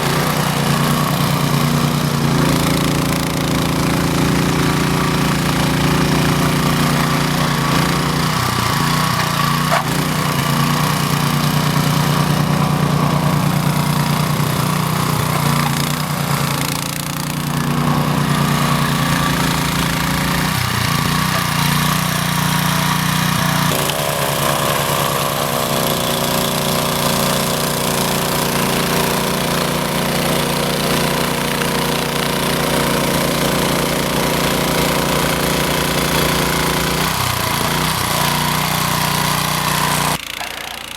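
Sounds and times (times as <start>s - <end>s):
snowblower engine running: 0.0s - 40.9s.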